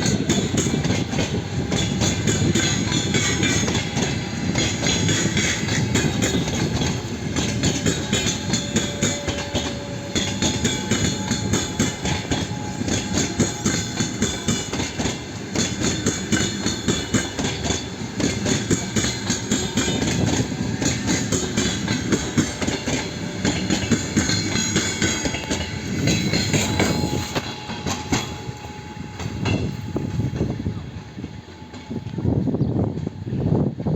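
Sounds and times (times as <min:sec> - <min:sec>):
train wheels clicking over rail joints: 0:00.0 - 0:30.8
train rumble: 0:00.0 - 0:33.9.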